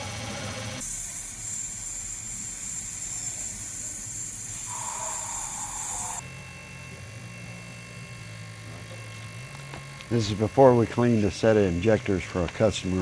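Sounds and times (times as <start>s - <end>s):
thin high whistle: 0.8s - 6.2s
lower tone: 0.8s - 9.3s.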